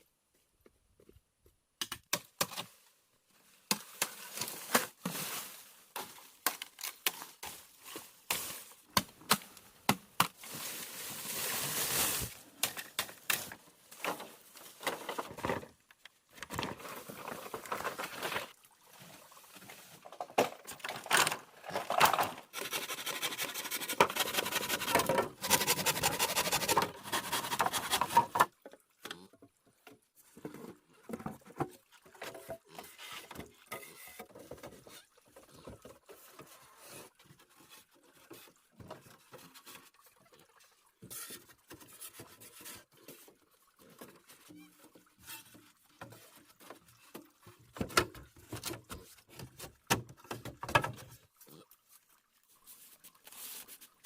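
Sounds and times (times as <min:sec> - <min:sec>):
dry plant material rustling: 0:10.4 - 0:12.6.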